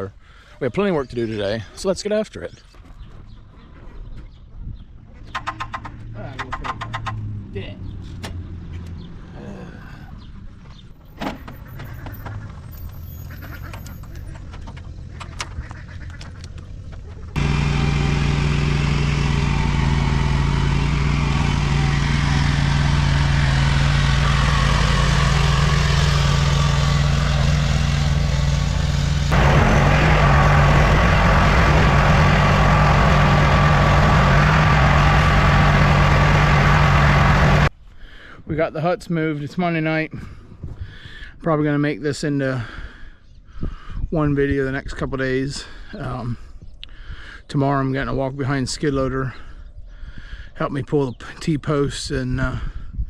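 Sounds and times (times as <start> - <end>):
vehicle engine running: 10.7 - 37.7.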